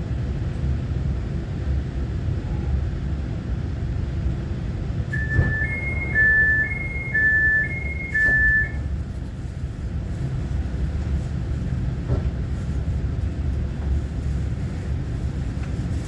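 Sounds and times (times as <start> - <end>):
train interior rumble: 0.0 - 16.0
electronic two-tone chime: 5.2 - 8.8.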